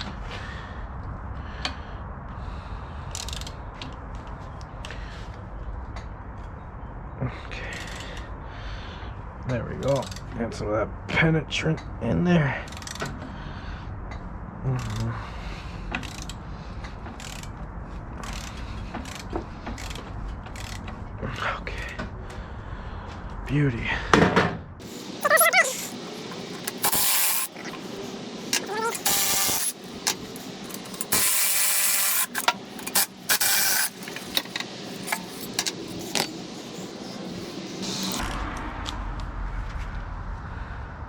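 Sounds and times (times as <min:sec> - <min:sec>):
ratchet wrench clicking: 0:03.1 - 0:03.5, 0:09.9 - 0:10.3, 0:12.7 - 0:13.1, 0:16.0 - 0:16.4, 0:17.2 - 0:17.5, 0:18.2 - 0:20.8, 0:25.2 - 0:38.2
hand tool rasping on bolts: 0:24.8 - 0:38.2.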